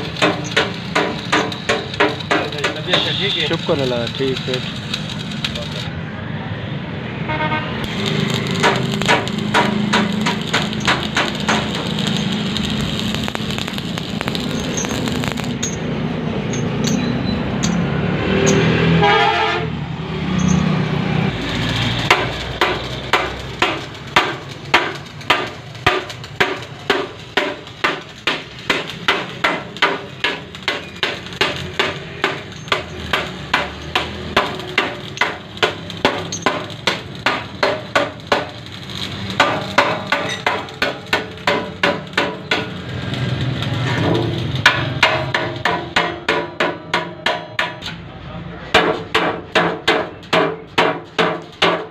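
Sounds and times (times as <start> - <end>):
knocking and clatter: 0.0 - 3.0, 8.3 - 15.8, 21.8 - 38.6, 39.4 - 43.2
hammer striking: 0.0 - 3.2, 7.9 - 15.9, 22.0 - 43.2, 43.8 - 48.1, 48.7 - 51.9.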